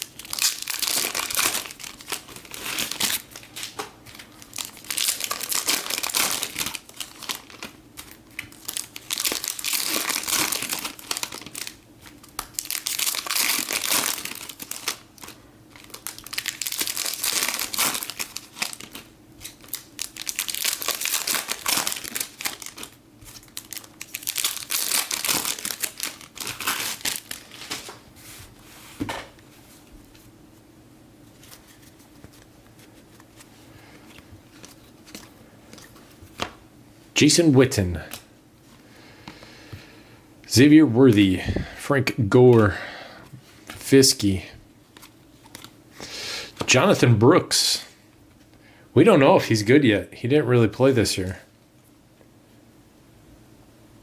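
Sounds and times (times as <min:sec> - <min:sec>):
foil wrappers crinkling and tearing: 0:00.0 - 0:28.0, 0:44.9 - 0:47.0.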